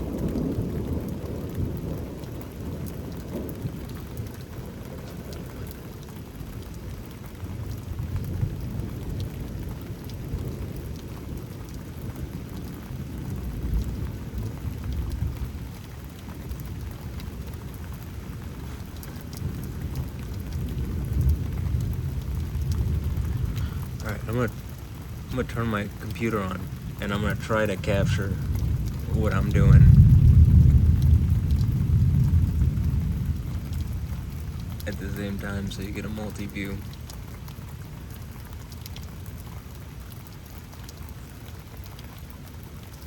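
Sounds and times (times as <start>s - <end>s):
low rolling thunder: 0.0s - 43.0s
rain falling: 0.0s - 43.0s.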